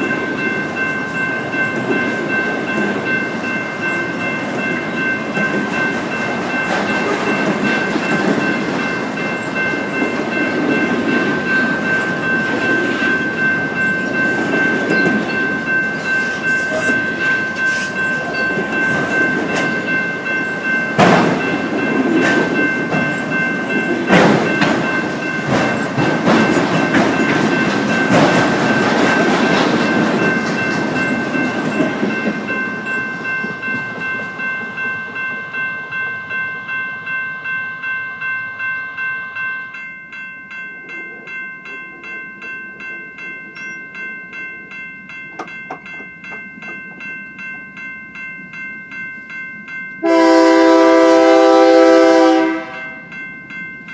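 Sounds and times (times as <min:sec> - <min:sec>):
train wheels rumbling on rails: 0:00.0 - 0:37.2, 0:40.8 - 0:53.9
wheels clacking over rail joints: 0:01.2 - 0:34.9.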